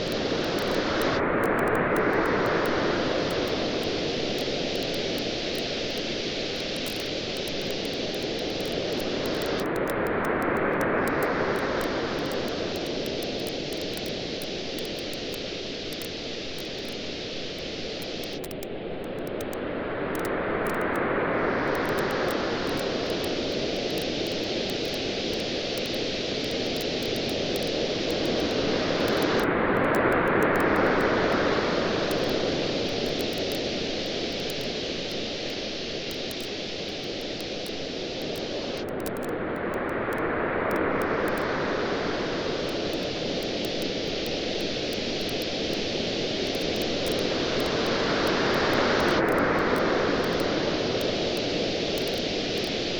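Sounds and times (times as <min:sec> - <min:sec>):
campfire crackling: 0:00.0 - 0:10.0, 0:10.8 - 0:19.6, 0:21.7 - 0:29.5, 0:30.3 - 0:39.2, 0:40.8 - 0:52.9
ocean waves washing in: 0:19.6 - 0:52.9.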